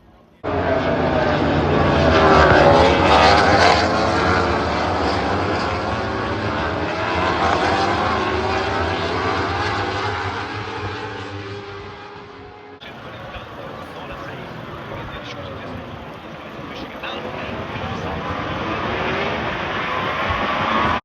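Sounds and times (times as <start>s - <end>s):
loud engine passing: 0.4s - 21.0s.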